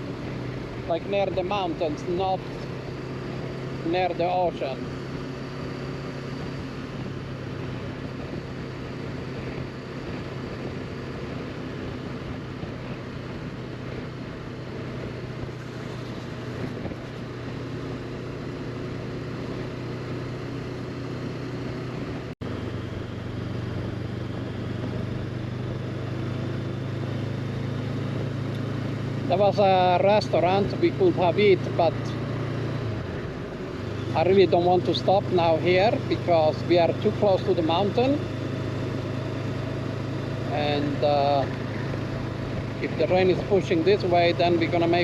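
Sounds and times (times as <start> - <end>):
motorcycle engine cruising: 0.0 - 45.0
wind noise over microphone: 6.3 - 20.2.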